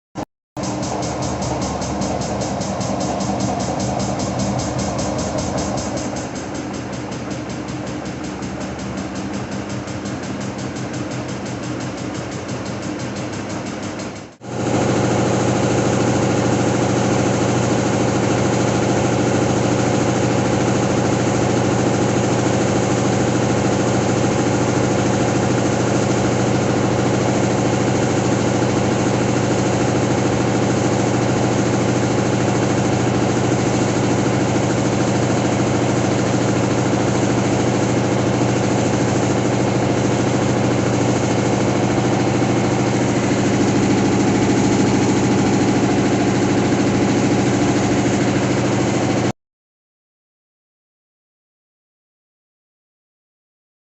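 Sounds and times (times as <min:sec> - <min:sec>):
washing machine drum spinning: 0:00.6 - 0:49.3
washing machine rhythmic whirr: 0:00.6 - 0:49.3.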